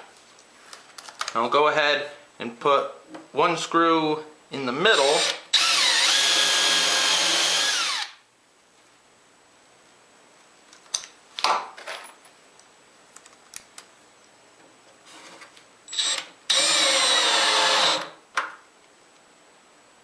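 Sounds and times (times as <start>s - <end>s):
power drill driving a screw: 5.0s - 8.2s, 15.9s - 18.2s.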